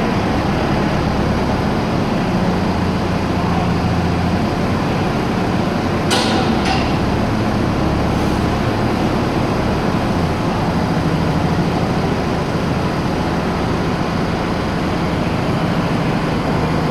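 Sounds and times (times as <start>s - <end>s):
diesel engine running: 0.0s - 16.9s.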